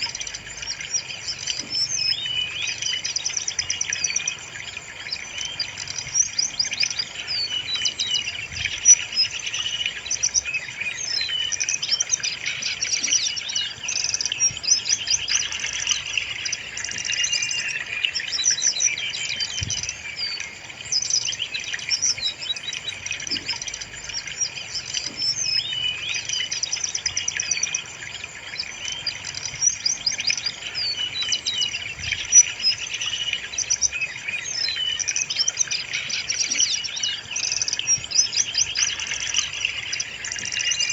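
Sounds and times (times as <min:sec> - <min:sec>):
bird singing high trills: 0:00.0 - 0:40.9.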